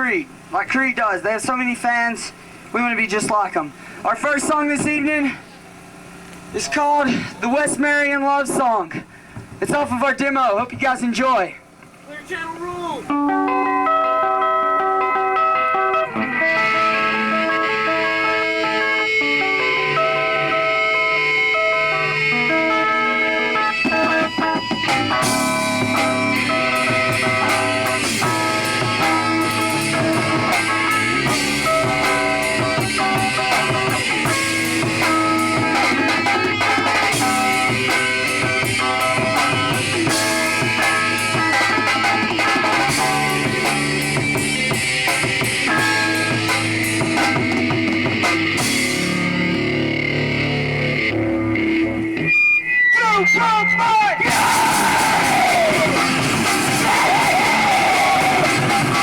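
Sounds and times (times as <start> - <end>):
live rock band playing: 13.0 - 59.0.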